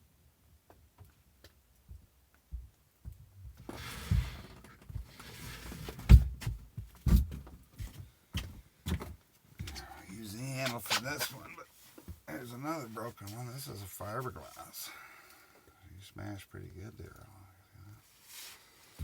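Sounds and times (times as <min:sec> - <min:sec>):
handling rustling: 0:09.0 - 0:14.8.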